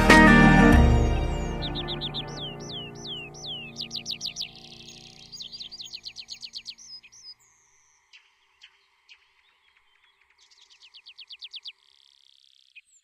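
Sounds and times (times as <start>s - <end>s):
soft background music: 0.0s - 6.7s
songbird singing: 0.0s - 13.0s.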